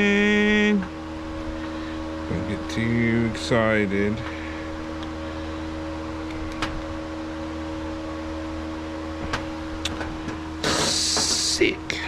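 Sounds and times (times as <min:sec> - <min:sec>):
steady mechanical hum: 0:00.0 - 0:12.0
loud hiss: 0:10.6 - 0:11.6.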